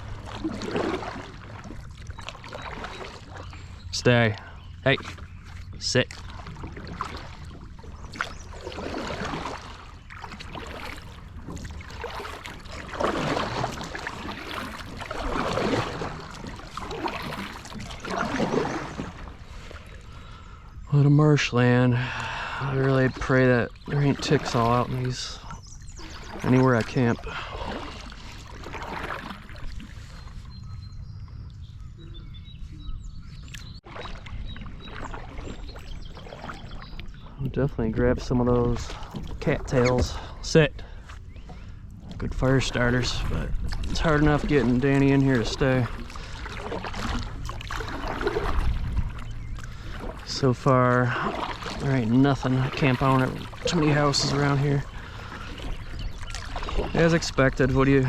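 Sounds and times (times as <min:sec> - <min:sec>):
paddle splashing through water: 0:00.0 - 0:58.0
faint bird chirps: 0:30.1 - 0:37.6.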